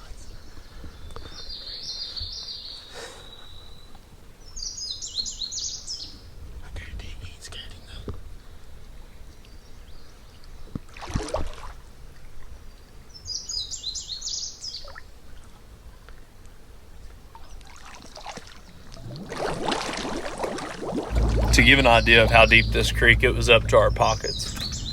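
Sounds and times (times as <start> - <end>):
songbird singing: 0.0 - 8.2, 8.8 - 10.8, 12.4 - 15.1, 20.4 - 24.9
water sloshing and splashing: 10.8 - 12.5, 17.6 - 24.9.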